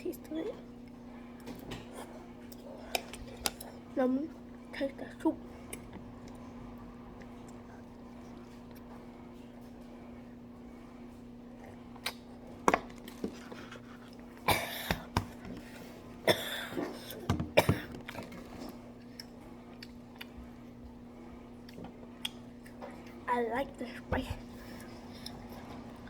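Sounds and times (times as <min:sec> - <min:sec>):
person coughing: 0:14.5 - 0:15.1, 0:16.2 - 0:18.0.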